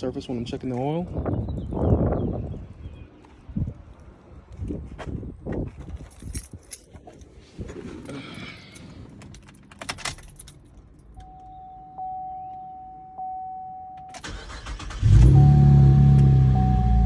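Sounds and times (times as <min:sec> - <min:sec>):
keys jangling: 0:05.8 - 0:07.2, 0:08.6 - 0:11.2
dashboard warning chime: 0:11.2 - 0:17.0
car engine cranking and starting: 0:14.1 - 0:17.0.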